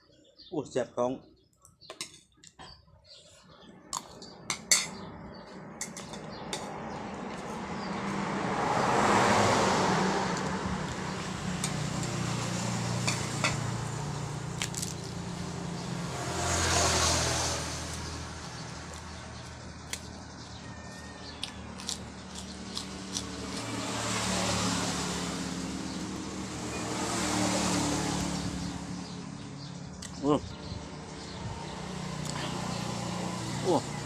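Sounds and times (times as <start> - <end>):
vehicles passing: 0.4 - 34.0
low engine hum: 4.3 - 20.9.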